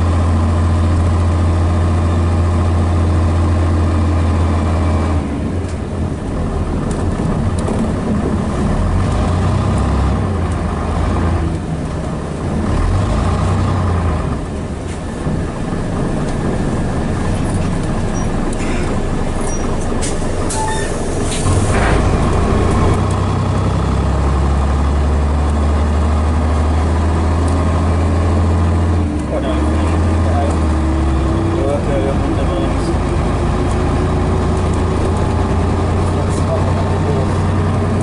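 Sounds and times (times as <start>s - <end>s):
diesel bus engine idling: 0.0s - 38.0s.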